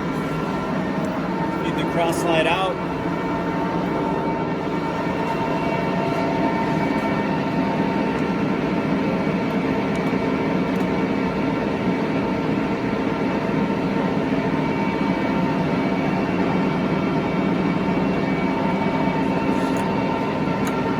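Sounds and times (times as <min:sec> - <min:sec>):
lathe machine whine: 0:00.0 - 0:20.9.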